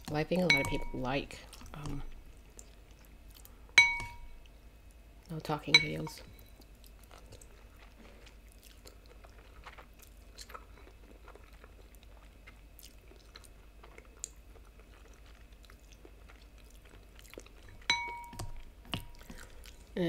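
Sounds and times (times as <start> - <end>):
person chewing noodles: 1.4 - 3.7, 6.5 - 20.0.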